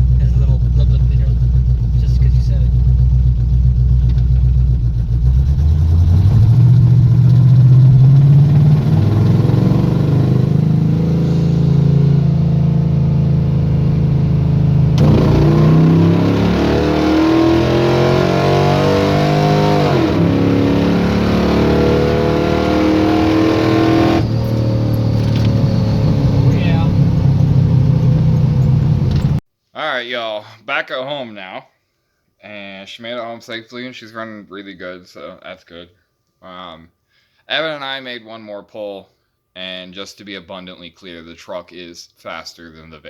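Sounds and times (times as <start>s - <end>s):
truck engine accelerating: 0.0s - 29.4s.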